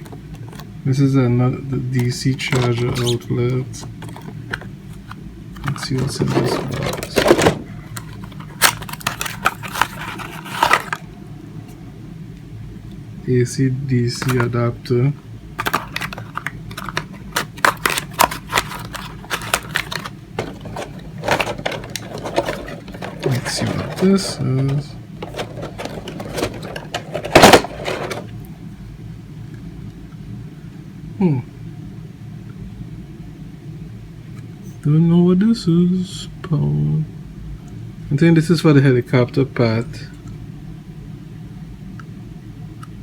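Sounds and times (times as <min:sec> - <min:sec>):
low steady hum: 0:00.0 - 0:43.0
cardboard box packaging crinkling: 0:05.6 - 0:11.0, 0:15.6 - 0:28.3.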